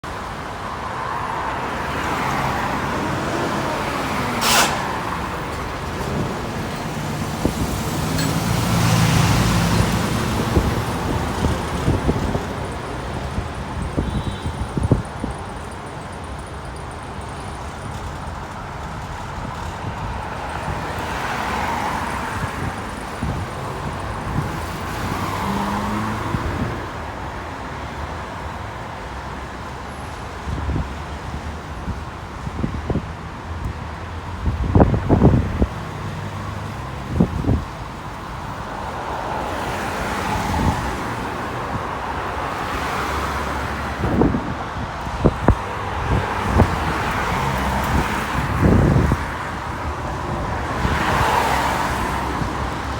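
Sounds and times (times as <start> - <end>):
traffic engines rumbling: 0.0 - 52.9
vehicle passing by: 1.6 - 12.7, 24.6 - 27.0.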